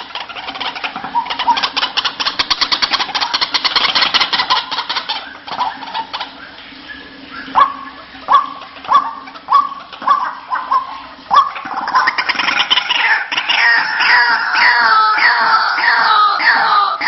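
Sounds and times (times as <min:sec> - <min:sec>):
bird rapid chatter: 0:00.0 - 0:17.0
faint steady hum: 0:00.0 - 0:17.0.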